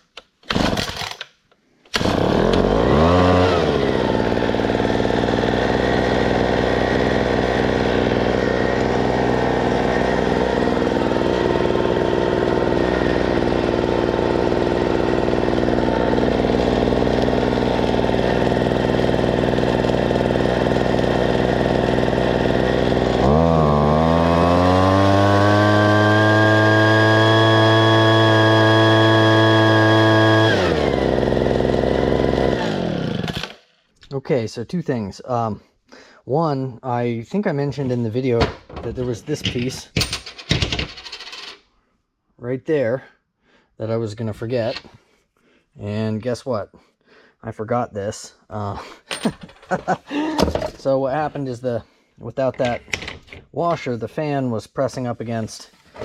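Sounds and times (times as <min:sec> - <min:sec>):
leaf blower engine running: 0:02.0 - 0:33.5, 0:49.7 - 0:50.6.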